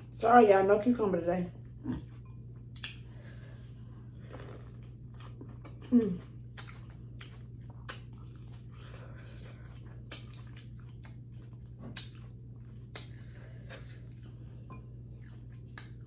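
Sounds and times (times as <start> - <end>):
steady low hum: 0.0 - 16.0
chewing with wet mouth clicks: 2.0 - 3.1, 6.4 - 16.0.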